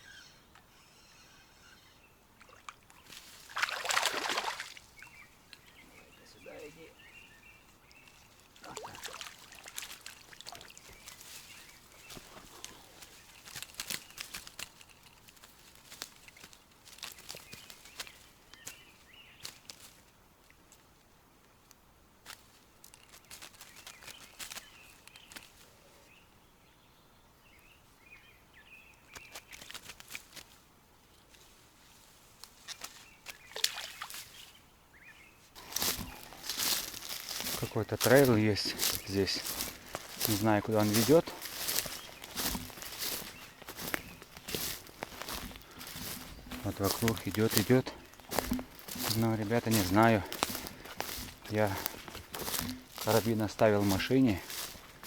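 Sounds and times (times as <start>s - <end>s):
faint bird chirps: 0.0s - 2.2s
rustling and clicking of handling: 9.8s - 20.0s, 21.6s - 25.7s, 28.9s - 31.5s, 35.6s - 55.0s.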